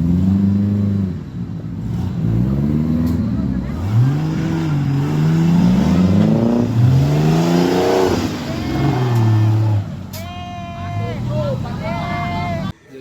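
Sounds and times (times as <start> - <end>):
engine revving under load: 0.0 - 10.1.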